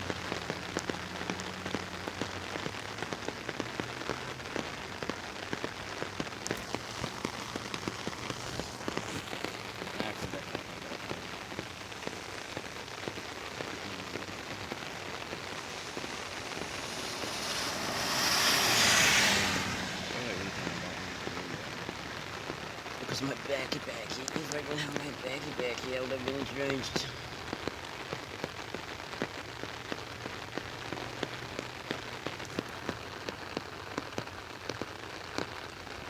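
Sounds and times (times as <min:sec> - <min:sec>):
rain on an umbrella: 0:00.0 - 0:36.0
broad hiss: 0:06.5 - 0:27.3.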